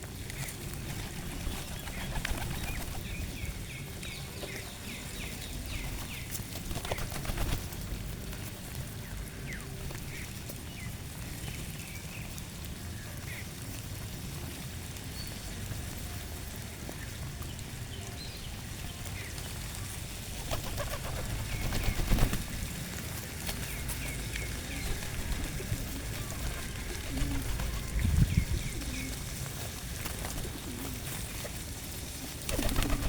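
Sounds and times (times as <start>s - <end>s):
small birds chirping: 0.2s - 7.6s, 16.9s - 22.7s, 23.5s - 31.6s
sharp clicks and fluttering: 0.3s - 3.2s, 20.4s - 22.7s, 32.4s - 33.0s.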